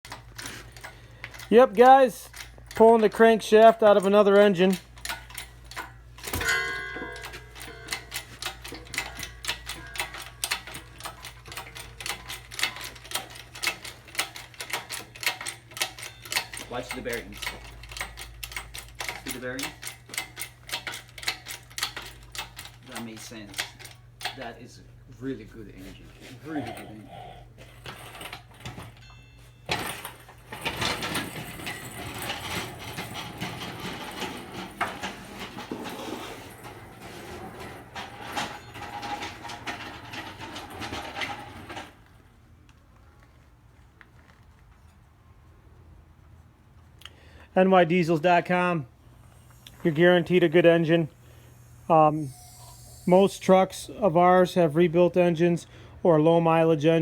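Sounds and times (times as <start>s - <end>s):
metal parts clattering and scraping: 0.1s - 24.5s, 26.2s - 42.2s
metallic clicking and tapping: 0.1s - 24.5s
steady low hum: 4.7s - 43.2s, 45.3s - 56.2s
metal clang: 5.0s - 12.9s, 27.9s - 41.9s.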